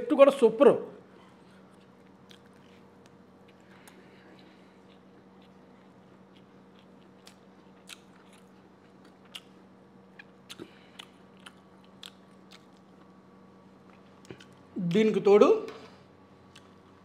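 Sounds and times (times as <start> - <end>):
faint steady hum: 0.0 - 17.0
person chewing food: 1.2 - 13.2, 13.8 - 14.7, 16.4 - 17.0.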